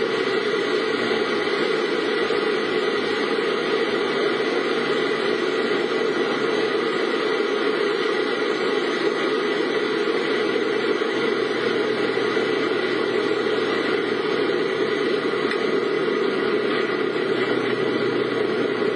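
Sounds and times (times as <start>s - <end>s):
car engine and road noise: 0.0s - 5.6s, 10.9s - 18.9s.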